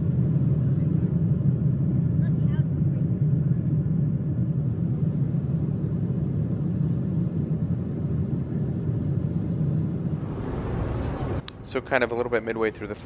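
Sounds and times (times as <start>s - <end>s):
airplane cabin rumble: 9.8s - 13.0s.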